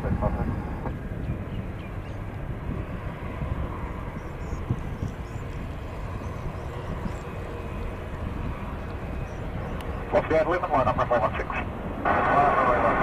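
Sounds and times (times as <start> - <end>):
jet airliner engines rumbling: 0.0 - 13.0.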